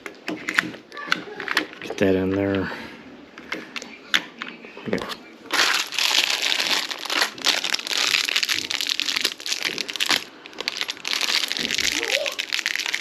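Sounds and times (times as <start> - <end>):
crinkling and crackling: 4.9 - 13.0.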